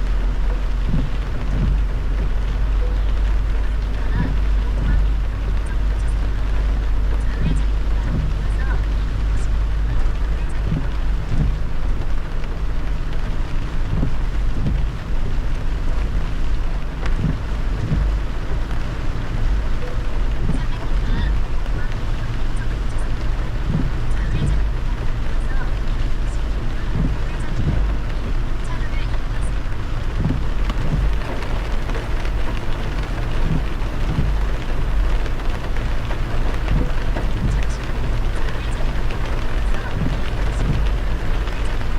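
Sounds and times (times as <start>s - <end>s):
falling rain: 0.0s - 41.9s
road rumble: 0.0s - 41.9s
tyres hissing on water: 0.0s - 41.9s.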